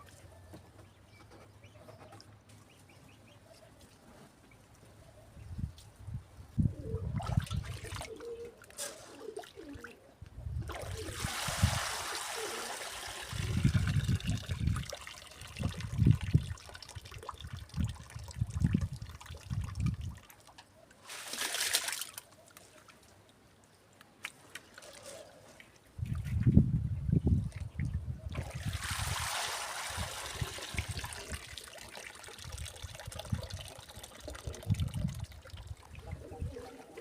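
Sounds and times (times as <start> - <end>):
water sloshing with grain: 7.0 - 9.9, 10.6 - 23.4, 24.3 - 26.4, 27.4 - 37.0
water pouring: 10.7 - 20.5, 28.3 - 36.2.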